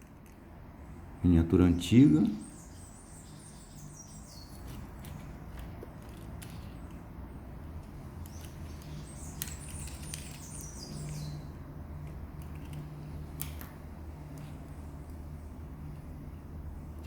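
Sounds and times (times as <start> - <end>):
steady low hum: 0.0 - 17.0
bird chirping: 0.8 - 5.4, 8.2 - 11.6.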